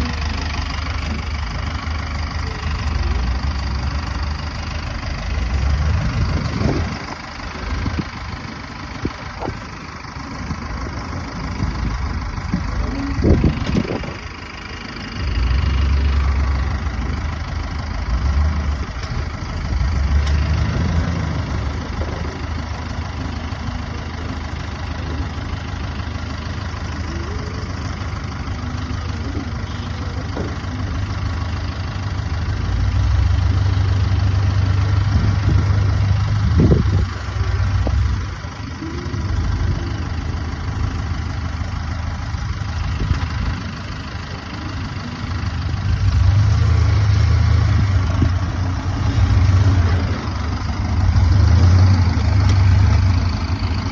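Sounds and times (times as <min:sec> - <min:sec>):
vehicle engine rumbling: 0:00.0 - 0:53.9.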